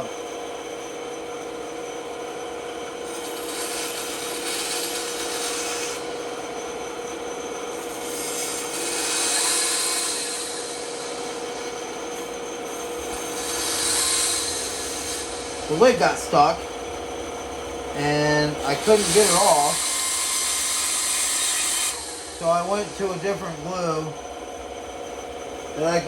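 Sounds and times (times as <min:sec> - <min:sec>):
steady hum: 0:00.0 - 0:26.0
wood rasping: 0:03.0 - 0:06.3, 0:07.7 - 0:16.9, 0:17.9 - 0:24.2.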